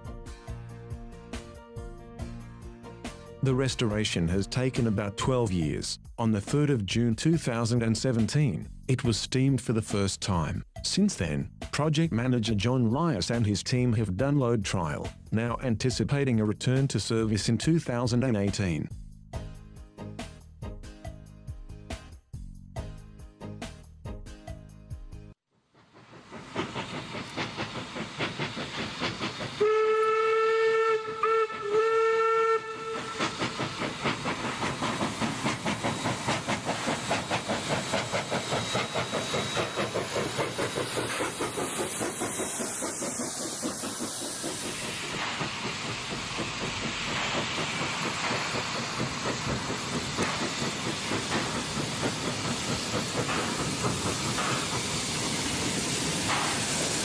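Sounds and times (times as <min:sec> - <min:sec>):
steam hissing: 0:25.7 - 0:57.0
steam locomotive exhaust beating: 0:25.7 - 0:57.0
steam whistle: 0:29.6 - 0:33.6.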